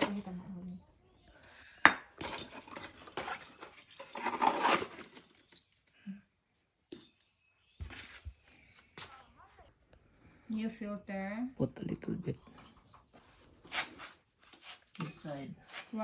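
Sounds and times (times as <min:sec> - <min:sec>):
metal parts clinking and rattling: 0:02.2 - 0:05.7.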